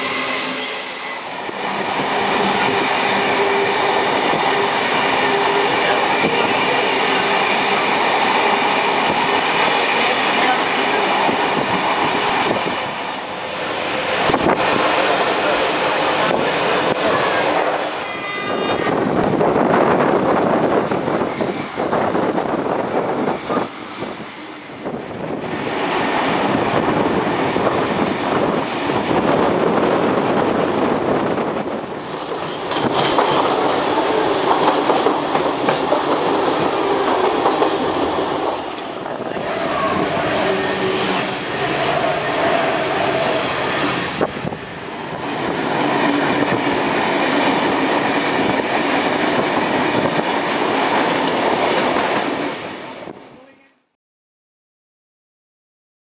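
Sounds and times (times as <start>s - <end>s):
train wheels rumbling on track: 0.0s - 53.2s
clickety-clack of rail joints: 31.0s - 39.4s, 45.2s - 53.2s.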